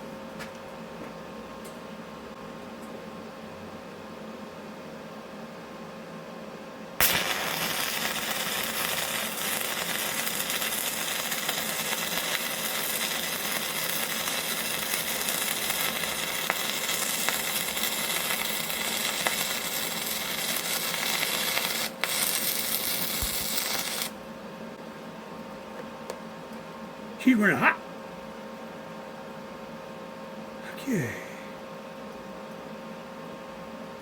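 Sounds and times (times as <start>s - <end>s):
welding arc crackling hiss: 7.0s - 24.2s.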